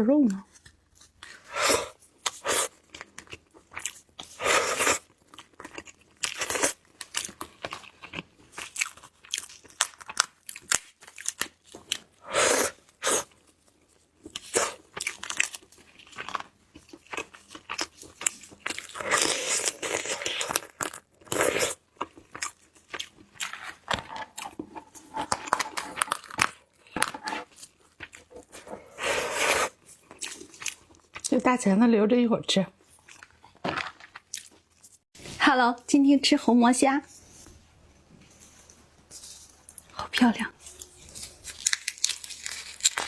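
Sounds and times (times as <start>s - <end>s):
wet chewing: 38.4s - 43.0s
shells cracking and crunching: 40.6s - 43.0s.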